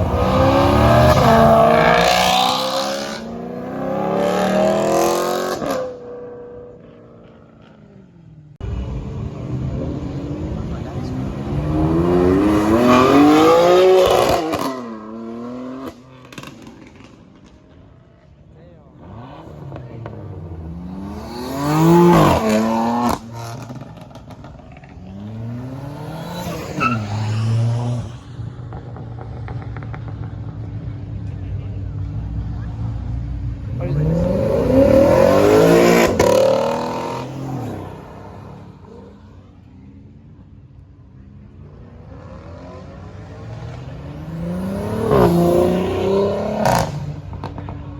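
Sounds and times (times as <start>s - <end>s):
car engine revving: 0.0s - 47.9s
car accelerating past: 19.0s - 31.1s, 41.7s - 47.9s.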